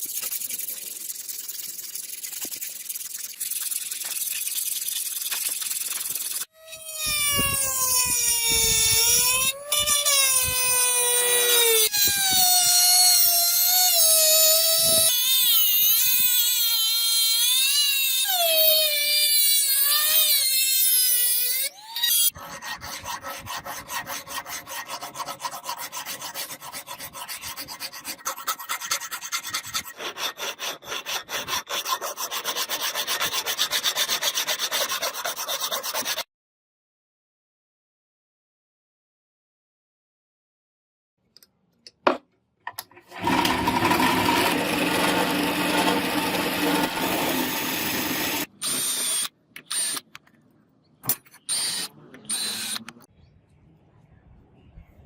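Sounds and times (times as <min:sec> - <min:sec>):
rasping strokes on steel: 0:19.3 - 0:36.3, 0:43.0 - 0:48.5.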